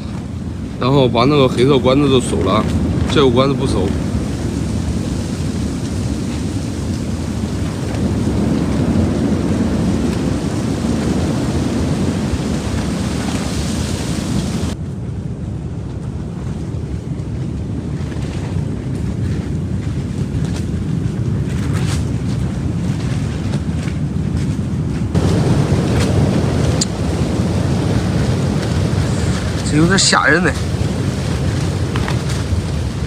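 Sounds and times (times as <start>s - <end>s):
gale wind buffeting microphone: 0.0s - 33.0s
sharp snaps and ticks: 26.0s - 27.0s.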